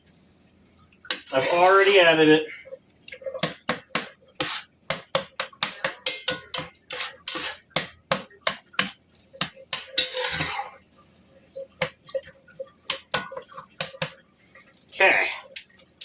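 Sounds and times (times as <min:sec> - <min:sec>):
utensil scraping: 0:01.1 - 0:02.2, 0:03.2 - 0:10.8
utensil clattering against cookware: 0:03.1 - 0:10.8, 0:11.7 - 0:14.2.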